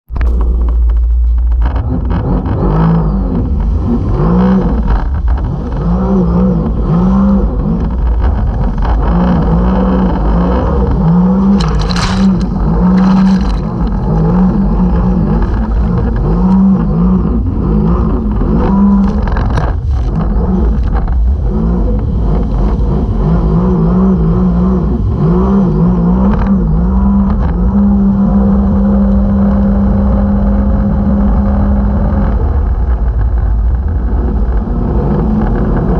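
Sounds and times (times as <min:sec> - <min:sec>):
heavy low rumble: 0:00.0 - 0:35.9
jet ski engine revving: 0:00.2 - 0:35.9.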